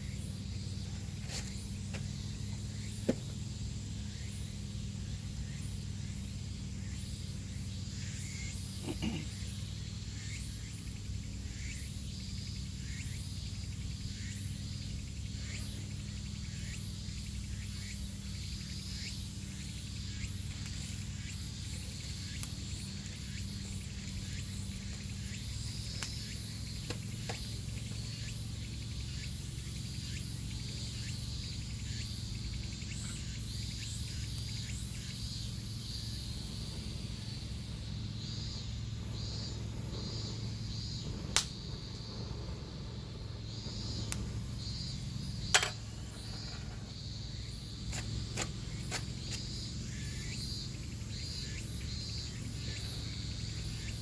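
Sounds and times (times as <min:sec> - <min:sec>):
insects chirping: 0:00.0 - 0:54.0
sharp click: 0:45.5 - 0:46.7.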